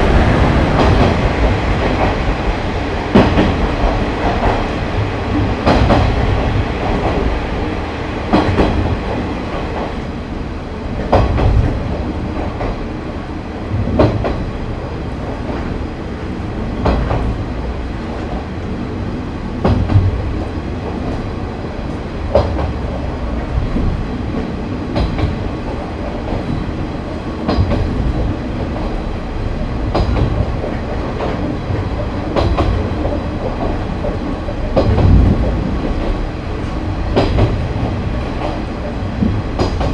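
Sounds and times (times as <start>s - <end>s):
diesel railcar rumbling: 0.0s - 39.9s
wheels clacking over rail joints: 19.6s - 39.9s.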